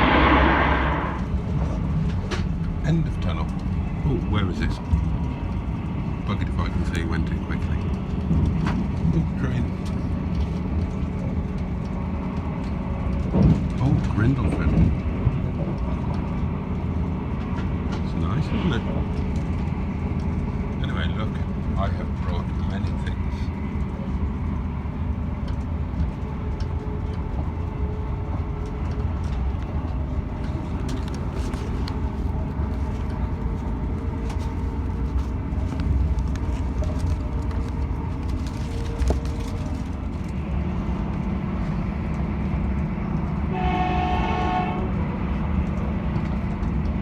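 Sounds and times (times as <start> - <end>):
train horn: 0.0 - 1.3, 43.5 - 45.3
train rumbling inside carriage: 0.0 - 47.0.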